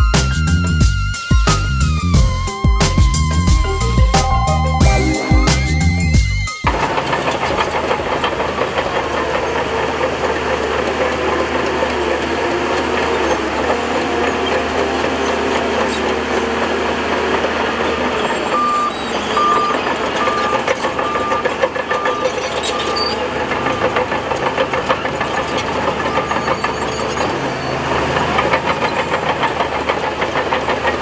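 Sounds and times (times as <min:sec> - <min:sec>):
reversing alarm beeping: 0:00.0 - 0:07.1, 0:11.6 - 0:28.9
heavy machinery engine running: 0:00.0 - 0:31.0.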